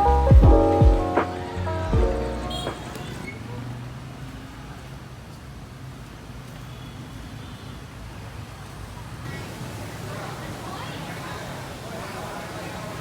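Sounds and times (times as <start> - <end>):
background music: 0.0 - 3.3
distant traffic hum: 0.0 - 6.6.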